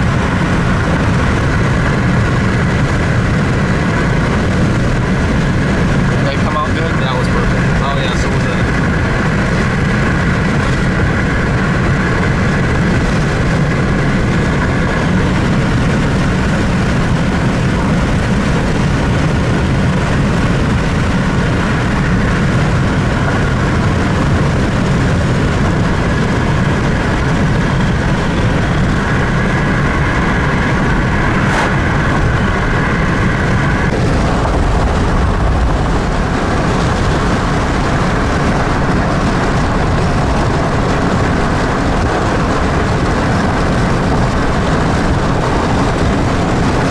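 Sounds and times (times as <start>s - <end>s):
vehicle engine running: 0.0s - 46.9s
heater blower: 5.7s - 46.9s.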